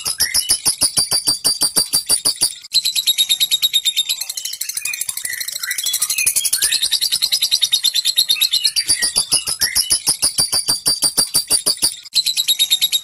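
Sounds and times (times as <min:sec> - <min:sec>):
short whistled chirps: 0:00.0 - 0:02.5
lovebird rattling trill: 0:00.0 - 0:02.7, 0:08.7 - 0:12.6.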